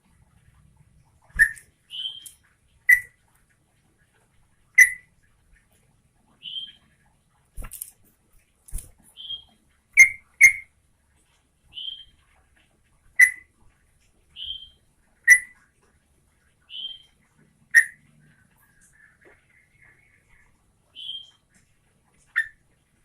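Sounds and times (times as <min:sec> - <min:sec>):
bulbul sharp calls: 0:01.3 - 0:03.2, 0:04.8 - 0:05.1, 0:09.1 - 0:10.7, 0:13.2 - 0:13.5, 0:14.4 - 0:15.6, 0:17.7 - 0:18.0.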